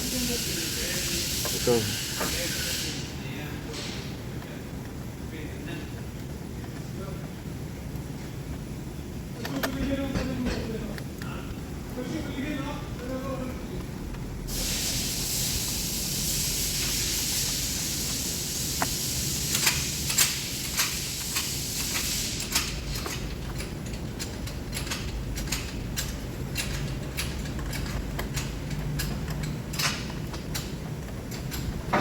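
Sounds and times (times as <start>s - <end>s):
hissing spray: 0.0s - 3.2s, 14.5s - 22.8s
tools tapping on metal: 22.5s - 32.0s.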